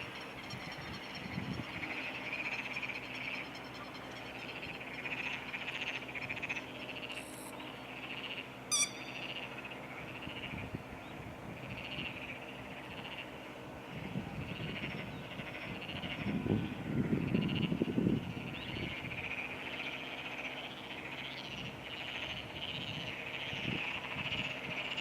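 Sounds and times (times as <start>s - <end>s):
frogs croaking: 0.0s - 25.0s
sharp bird call: 8.7s - 9.4s.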